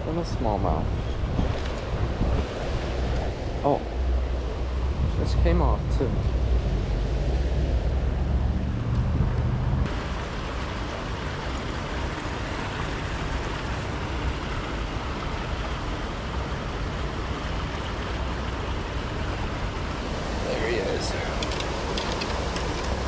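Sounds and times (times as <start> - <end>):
wind rumble on microphone: 0.0 - 23.0
river water rushing: 9.9 - 23.0.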